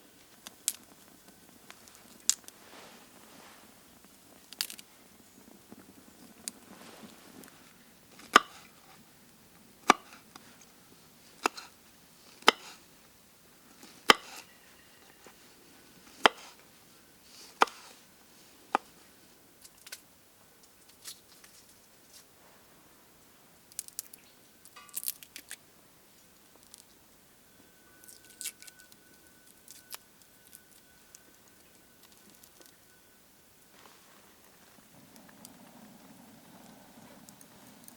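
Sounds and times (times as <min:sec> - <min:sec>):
handling rustles: 0:01.7 - 0:03.8
blade chopping strikes: 0:12.4 - 0:12.8, 0:14.1 - 0:14.4.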